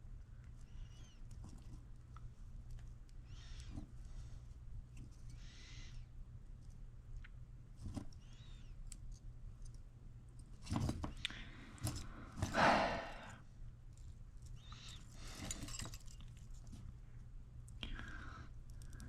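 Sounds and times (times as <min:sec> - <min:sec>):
steady low hum: 0:00.0 - 0:19.0
small clicks: 0:18.6 - 0:19.0.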